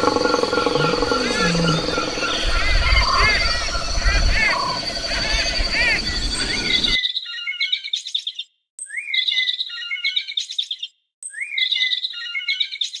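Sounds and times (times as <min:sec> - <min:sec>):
songbird singing: 0:00.0 - 0:07.5.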